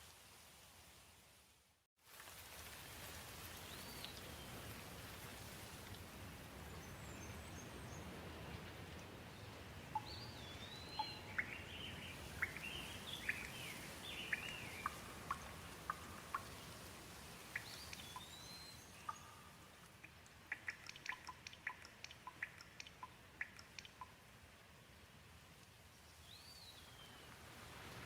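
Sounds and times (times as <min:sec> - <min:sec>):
gentle rain falling: 0:00.0 - 0:28.0
bird chirping: 0:09.9 - 0:16.8, 0:17.5 - 0:24.2
sharp dripping ticks: 0:09.9 - 0:24.9.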